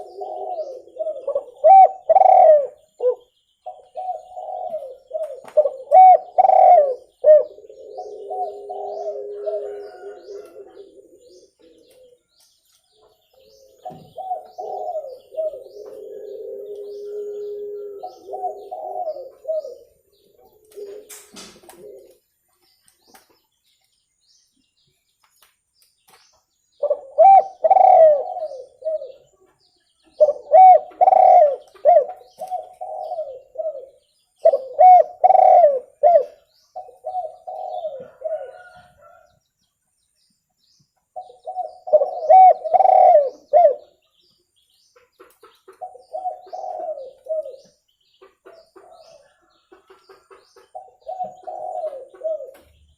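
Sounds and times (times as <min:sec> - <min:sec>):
dove cooing: 0:00.0 - 0:12.4, 0:13.3 - 0:22.2, 0:26.8 - 0:29.4, 0:30.0 - 0:39.3, 0:41.2 - 0:44.0, 0:45.7 - 0:47.8, 0:50.7 - 0:52.8.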